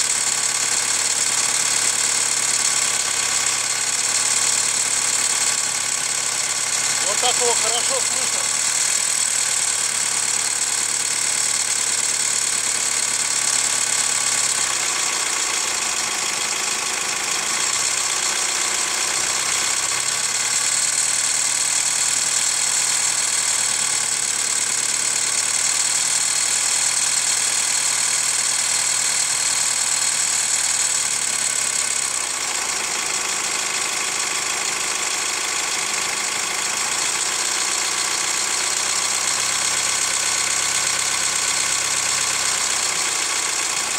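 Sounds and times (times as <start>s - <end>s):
diesel engine idling with knock: 0.0s - 43.9s.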